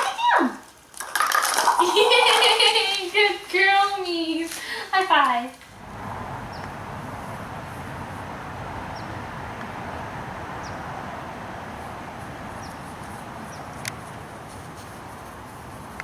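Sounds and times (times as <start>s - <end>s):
outdoor background noise: 0.0s - 16.0s
small bird chirping: 5.8s - 15.6s.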